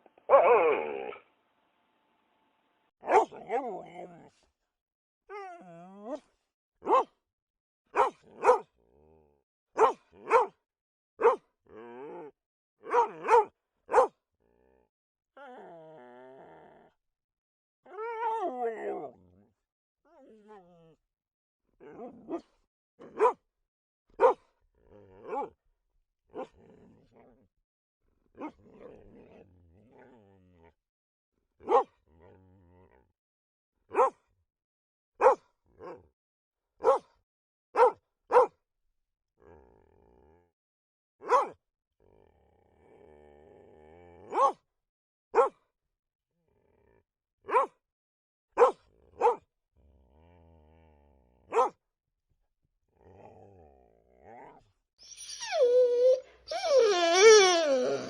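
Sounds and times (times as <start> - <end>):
dog growling low: 0.0 - 1.2, 5.3 - 6.4, 8.8 - 9.4, 11.7 - 12.4, 14.4 - 17.0, 17.8 - 21.0, 21.8 - 23.2, 24.7 - 25.6, 26.3 - 27.5, 28.4 - 30.8, 32.0 - 33.2, 39.4 - 40.6, 42.0 - 44.4, 46.4 - 47.1, 49.8 - 51.8, 52.9 - 58.0
dog barking: 0.2 - 1.2, 3.0 - 3.8, 6.8 - 7.2, 7.9 - 8.7, 9.8 - 10.6, 11.2 - 11.4, 12.8 - 14.2, 22.2 - 23.4, 24.2 - 24.5, 25.2 - 25.5, 28.4 - 28.6, 31.6 - 32.0, 33.9 - 34.2, 35.2 - 36.0, 36.8 - 37.1, 37.8 - 38.5, 41.2 - 41.6, 44.3 - 44.6, 45.3 - 45.6, 47.5 - 47.8, 48.6 - 49.5, 51.5 - 51.8.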